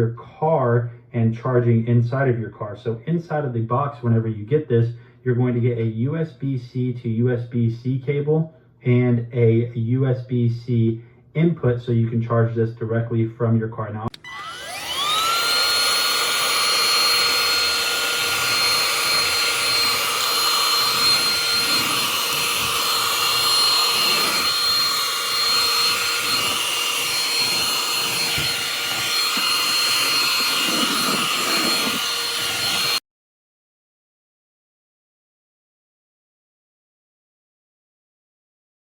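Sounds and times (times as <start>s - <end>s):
handheld vacuum motor whine: 14.1s - 33.0s.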